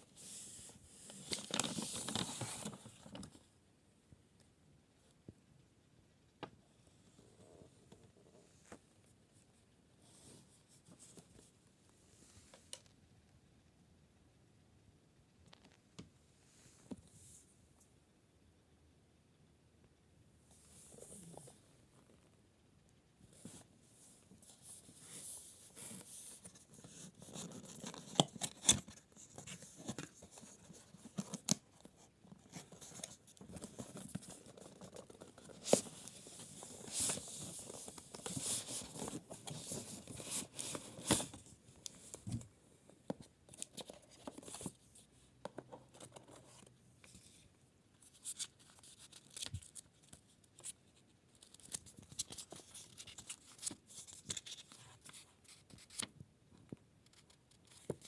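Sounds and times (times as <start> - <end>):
packaging rustling and tearing: 1.1 - 2.9.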